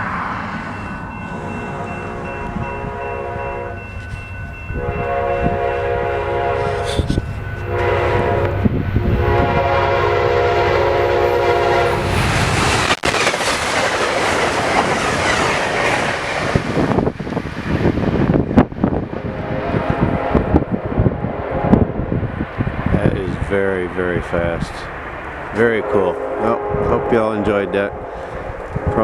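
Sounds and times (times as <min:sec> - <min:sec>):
train rushing past: 0:00.0 - 0:29.0
train horn blasts: 0:00.7 - 0:12.5, 0:19.1 - 0:22.2, 0:25.8 - 0:29.0.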